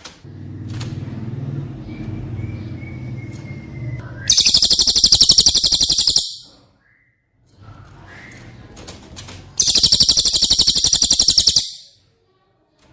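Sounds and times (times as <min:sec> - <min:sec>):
fast high-pitched trill: 0:04.3 - 0:06.5, 0:09.6 - 0:11.9
thin held whistle: 0:04.3 - 0:06.5, 0:09.6 - 0:11.9.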